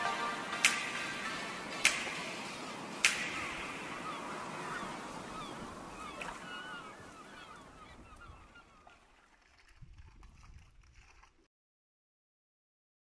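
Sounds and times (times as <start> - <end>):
birds chirping: 0.2 - 9.1.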